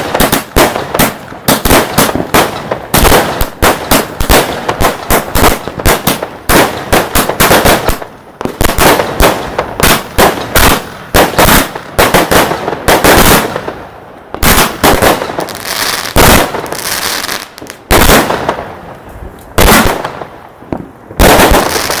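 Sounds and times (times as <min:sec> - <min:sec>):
crackling hiss of fireworks: 0:00.0 - 0:22.0
fireworks bangs: 0:00.0 - 0:22.0.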